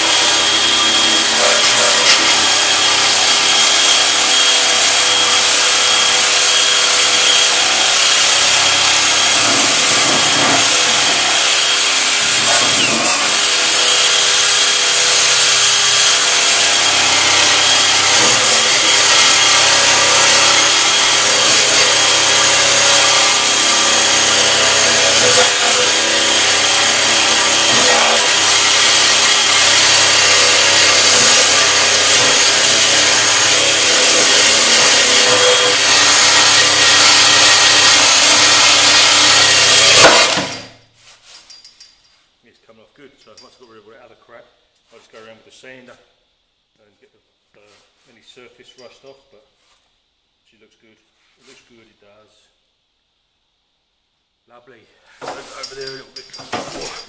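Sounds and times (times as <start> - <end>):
wire brush scrubbing steel: 0.0 - 4.0, 7.2 - 24.2, 24.8 - 38.2
electric drill with wire brush: 0.0 - 40.7.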